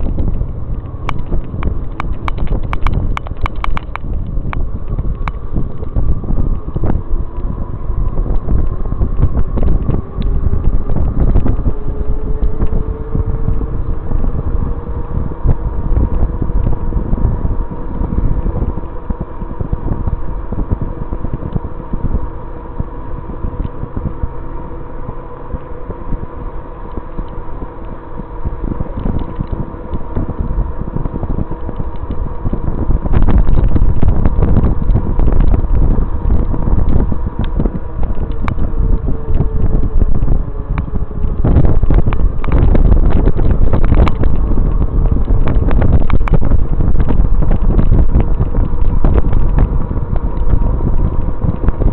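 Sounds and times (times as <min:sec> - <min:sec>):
electric motor whine: 0:00.0 - 0:51.9
wind buffeting microphone: 0:00.0 - 0:51.9.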